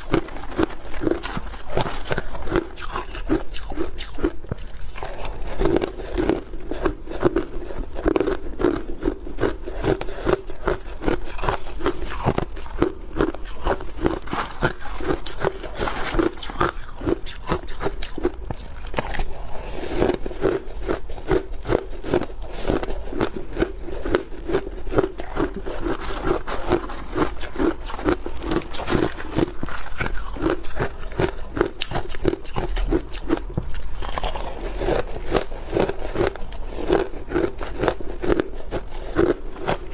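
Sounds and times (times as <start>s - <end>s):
person chewing ice crunching: 0.0s - 39.9s.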